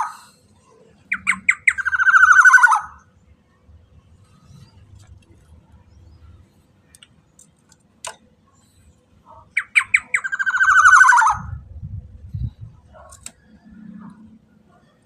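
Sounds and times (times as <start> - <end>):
bird harsh rasping call: 1.1 - 3.1, 9.3 - 11.6.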